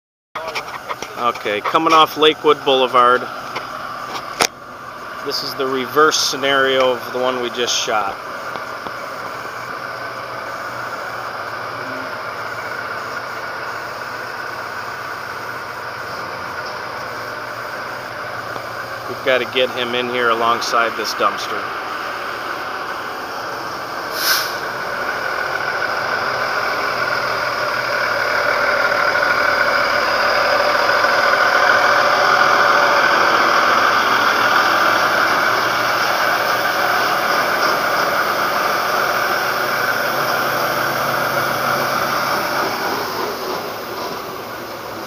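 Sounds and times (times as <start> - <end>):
truck engine running: 0.4 - 45.0.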